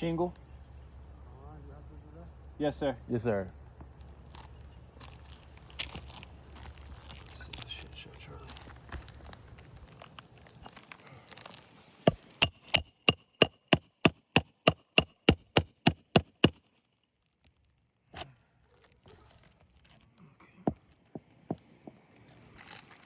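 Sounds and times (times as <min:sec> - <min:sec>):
hammer striking nail: 0:12.1 - 0:16.6.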